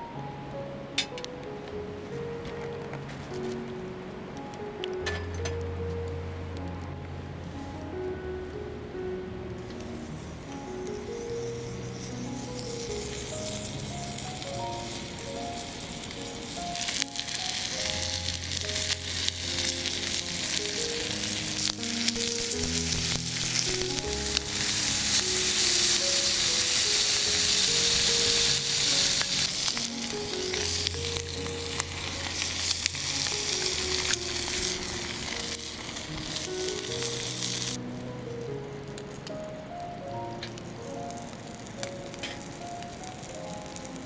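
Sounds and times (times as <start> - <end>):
fine crackling: 0.0 - 44.0
food sizzling in a pan: 9.6 - 44.0.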